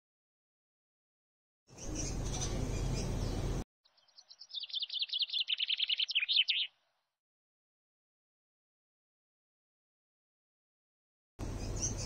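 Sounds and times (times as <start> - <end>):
songbird trilling high notes: 3.9 - 6.8.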